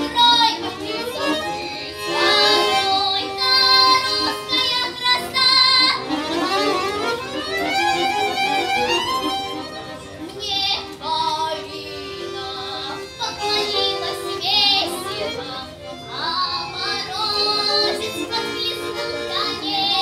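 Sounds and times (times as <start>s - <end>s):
child singing: 0.0s - 6.1s, 10.4s - 20.0s
instrumental accompaniment: 0.0s - 20.0s.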